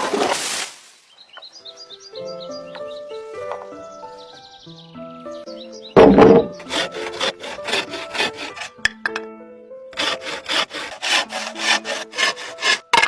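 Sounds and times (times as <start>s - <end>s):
background music: 1.6s - 13.0s
hand saw cutting bamboo: 6.0s - 8.9s, 9.9s - 13.0s.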